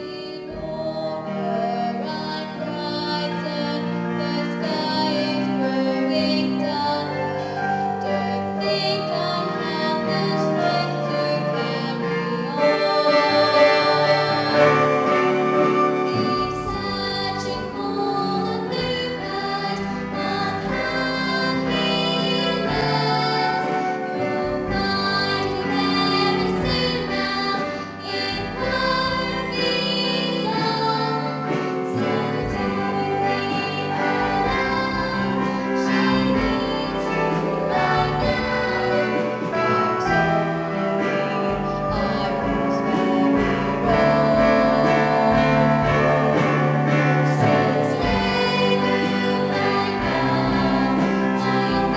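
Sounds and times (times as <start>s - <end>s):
instrumental accompaniment: 0.0s - 51.9s
voices singing together: 0.0s - 51.9s.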